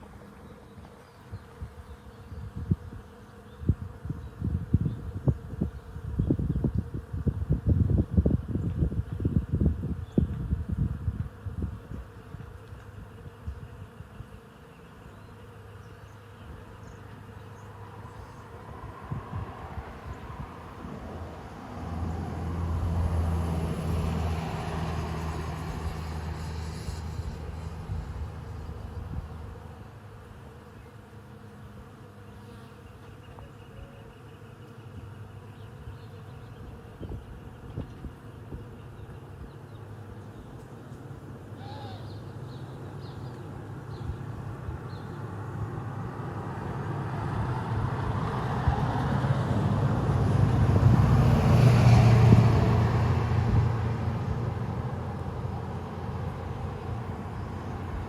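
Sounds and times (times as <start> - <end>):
bees buzzing: 0.0 - 49.6, 50.5 - 58.0
vehicle driving past: 17.7 - 29.7, 45.2 - 58.0.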